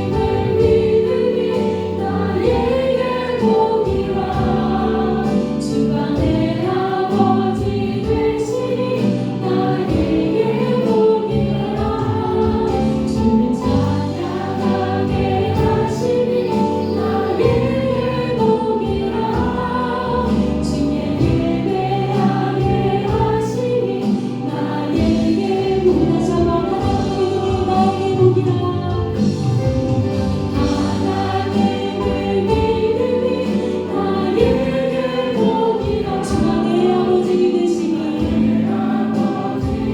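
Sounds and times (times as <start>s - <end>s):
congregation singing worship song: 0.0s - 39.9s
instrumental accompaniment: 0.0s - 39.9s.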